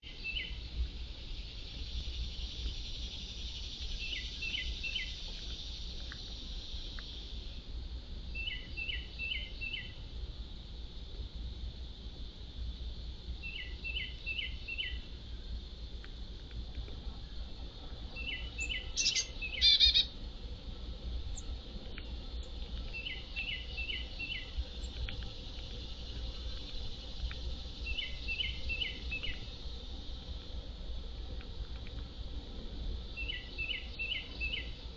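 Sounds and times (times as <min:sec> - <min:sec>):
bird chirps: 0:00.0 - 0:00.6, 0:03.9 - 0:05.2, 0:08.4 - 0:10.0, 0:13.4 - 0:15.0, 0:18.2 - 0:20.1, 0:22.9 - 0:25.0, 0:27.8 - 0:29.5, 0:33.2 - 0:34.8
songbird singing: 0:00.0 - 0:12.1, 0:12.9 - 0:34.9
insects chorus: 0:00.0 - 0:34.9
low outdoor background: 0:00.0 - 0:34.9
faint ticks: 0:00.8 - 0:07.9, 0:15.4 - 0:18.0, 0:20.6 - 0:34.9.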